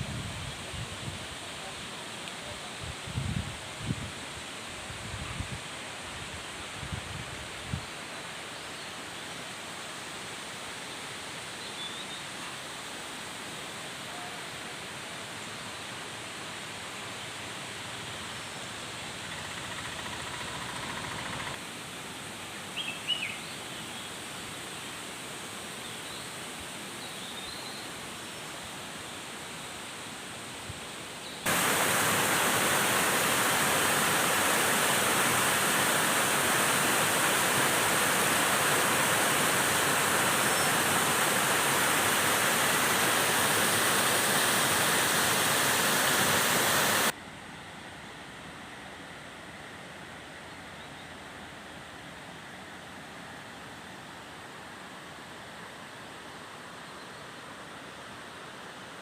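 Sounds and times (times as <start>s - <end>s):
flowing water rushing: 31.4s - 47.2s.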